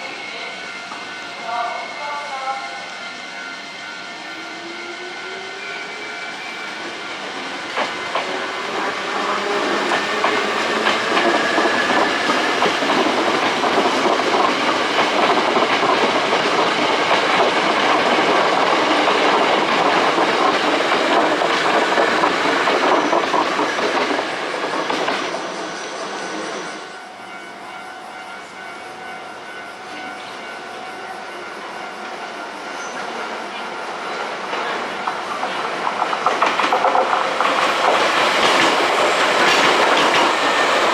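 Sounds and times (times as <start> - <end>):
electric train passing: 0.0 - 40.9
wheels clattering on rails: 7.2 - 25.6, 34.2 - 40.9.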